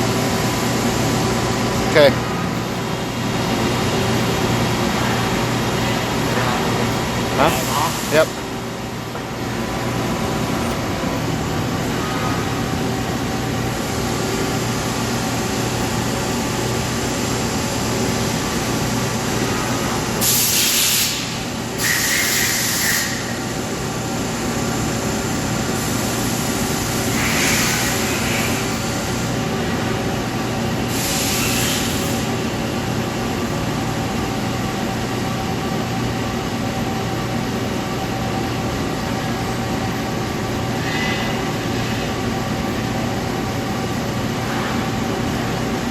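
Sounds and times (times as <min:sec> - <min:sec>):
lathe machine hum: 0:00.0 - 0:45.9
short bursts of hiss: 0:20.2 - 0:23.4.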